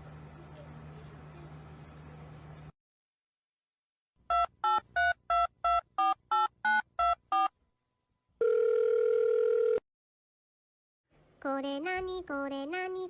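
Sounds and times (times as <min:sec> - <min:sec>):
steady telephone tone: 0:08.4 - 0:09.8.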